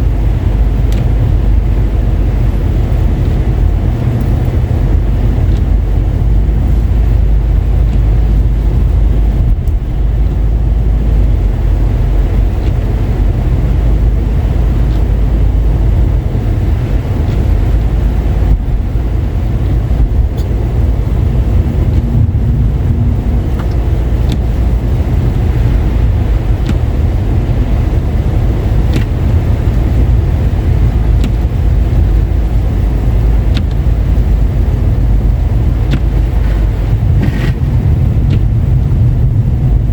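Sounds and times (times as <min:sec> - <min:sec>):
car engine: 0:00.0 - 0:39.9
tyre noise on wet road: 0:00.0 - 0:39.9
light ticks: 0:00.9 - 0:01.3, 0:04.1 - 0:04.6, 0:09.5 - 0:10.4, 0:30.8 - 0:32.3.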